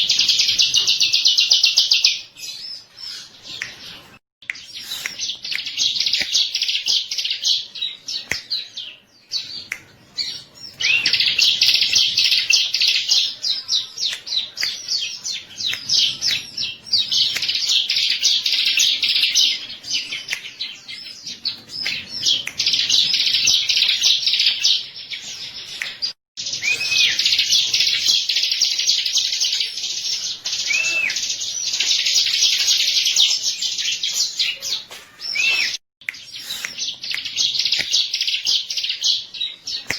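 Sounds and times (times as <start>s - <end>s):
bird twittering chatter: 9.4s - 39.9s
bird whistled notes: 26.5s - 27.4s.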